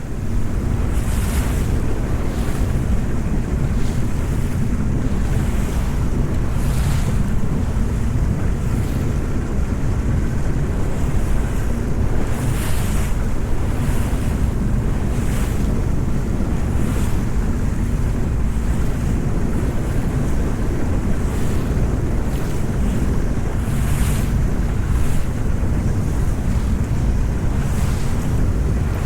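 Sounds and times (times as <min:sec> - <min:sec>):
boat engine rumble: 0:00.0 - 0:29.0
water splashing against hull: 0:00.0 - 0:29.0
wind buffeting microphone: 0:00.0 - 0:29.0.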